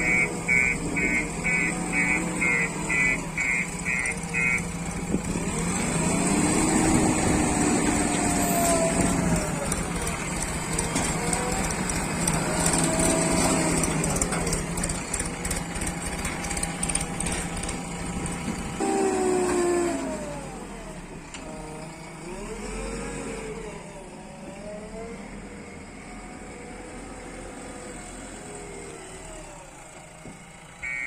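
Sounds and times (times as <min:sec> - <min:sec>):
diesel engine revving: 0:00.0 - 0:31.0.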